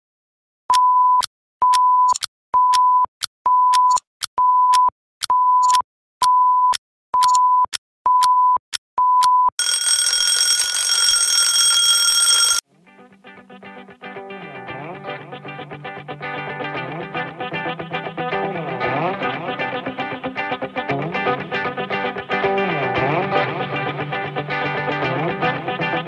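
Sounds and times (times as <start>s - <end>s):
timer beeping: 0.7s - 12.6s
alarm clock bells ringing: 9.6s - 12.6s.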